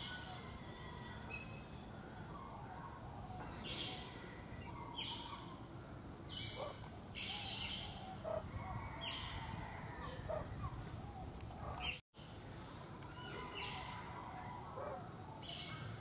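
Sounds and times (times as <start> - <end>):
birds chirping: 1.4 - 9.4.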